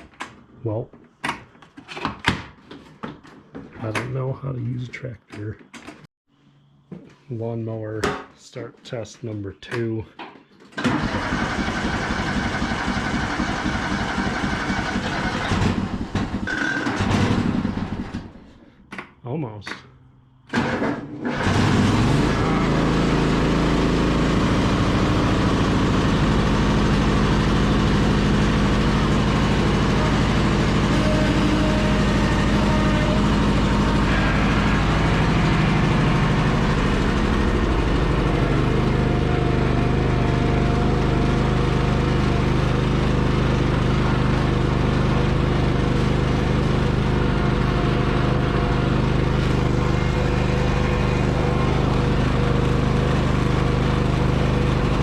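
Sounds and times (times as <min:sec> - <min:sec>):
lawn mower engine cranking: 0:10.8 - 0:18.3, 0:20.5 - 0:55.0
lawn mower engine running: 0:10.8 - 0:18.3, 0:20.5 - 0:55.0.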